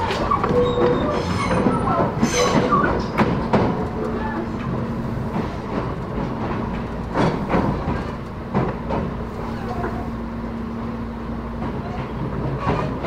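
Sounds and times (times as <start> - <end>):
wheels knocking over rail joints: 0.0 - 9.2
train rumble: 0.0 - 13.0.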